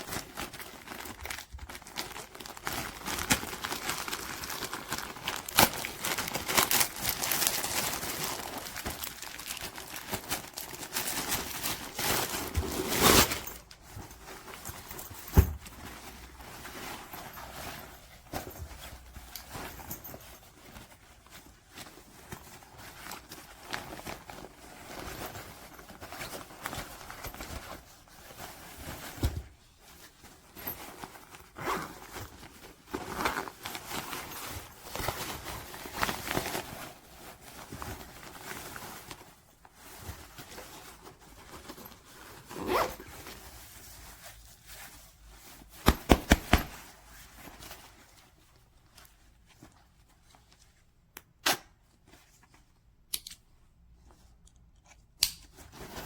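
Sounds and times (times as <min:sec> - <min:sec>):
fabric rustling: 0:00.0 - 0:51.1, 0:55.5 - 0:56.0
zippers pulled open and shut: 0:31.5 - 0:32.1, 0:42.5 - 0:43.1.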